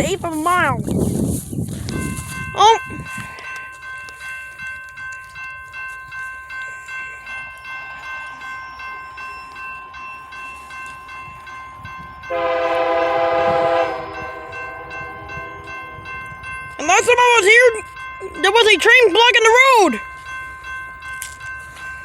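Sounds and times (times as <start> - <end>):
railroad crossing bell ringing: 1.7 - 22.0
train horn blasting: 12.3 - 16.4.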